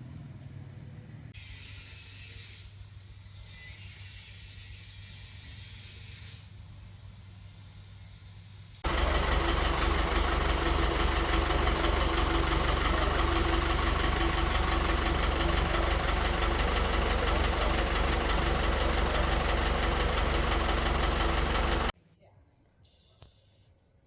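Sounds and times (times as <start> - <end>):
car engine idling: 8.8 - 21.9.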